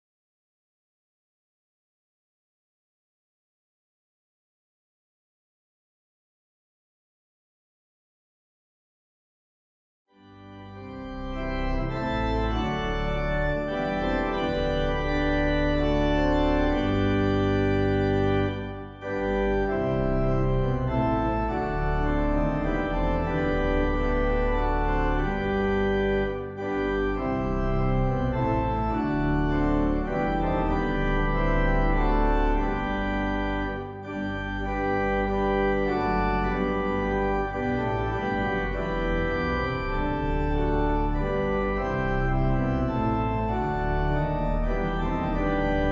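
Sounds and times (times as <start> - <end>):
church organ sustained chords: 10.1 - 45.9.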